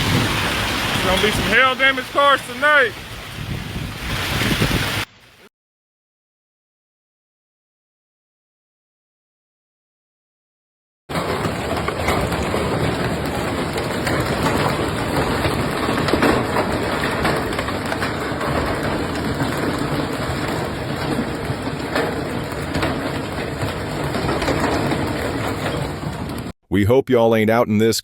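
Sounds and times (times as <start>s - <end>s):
hail and rain pounding: 0.0s - 5.1s, 11.1s - 26.5s.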